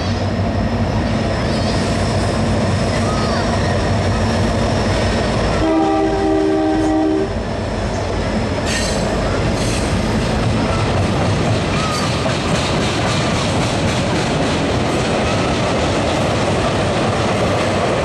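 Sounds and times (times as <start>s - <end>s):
train horn blast: 5.5s - 7.4s
train wheels clattering: 8.6s - 18.0s.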